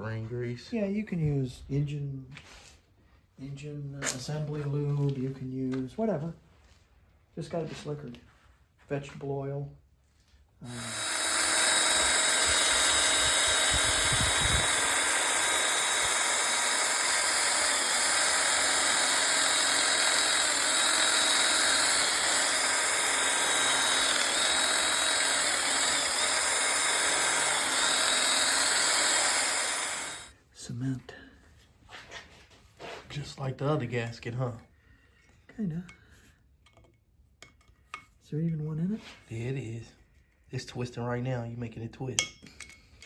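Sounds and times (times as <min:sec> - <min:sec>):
power tool running: 0:10.7 - 0:30.3.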